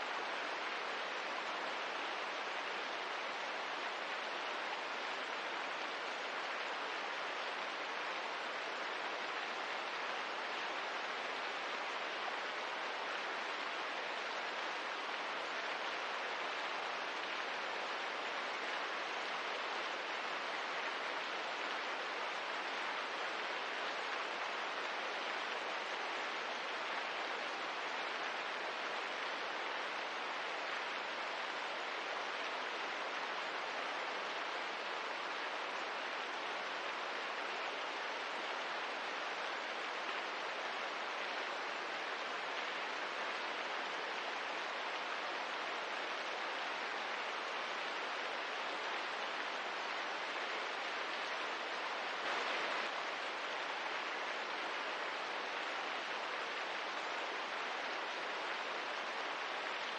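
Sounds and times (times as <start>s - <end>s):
rain hissing: 47.9s - 59.9s.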